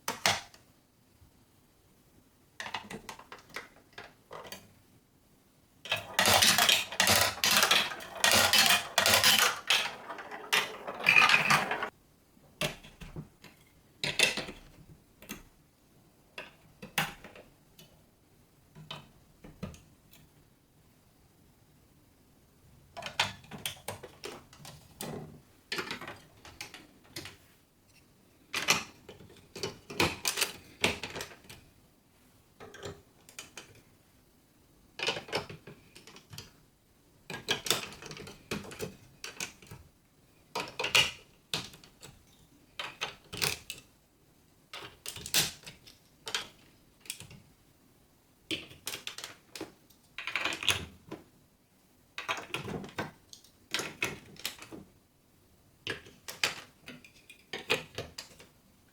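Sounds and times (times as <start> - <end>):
marbles clattering down marble run: 5.9 - 11.9.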